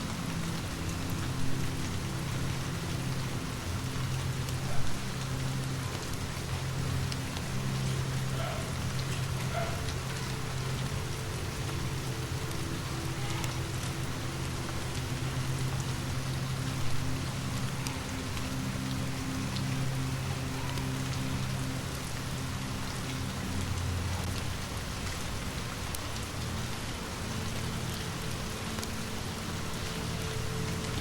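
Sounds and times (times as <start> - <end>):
rain falling: 0.0 - 31.0.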